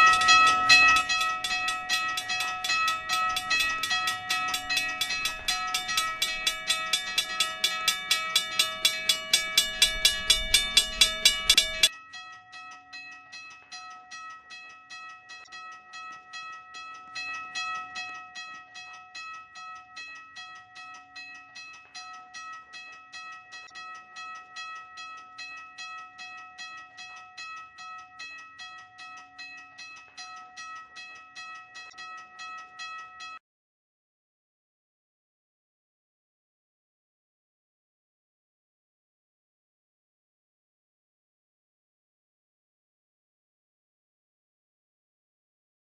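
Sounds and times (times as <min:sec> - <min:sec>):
faint bell strokes: 0:00.0 - 0:11.9
railroad crossing bell ringing: 0:00.0 - 0:33.4.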